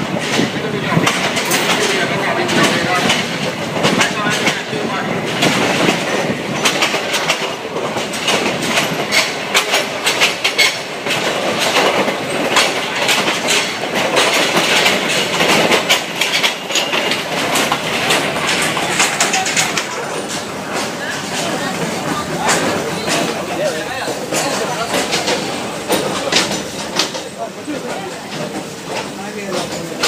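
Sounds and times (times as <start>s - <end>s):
train wheels clattering over rail joints: 0.0s - 30.0s.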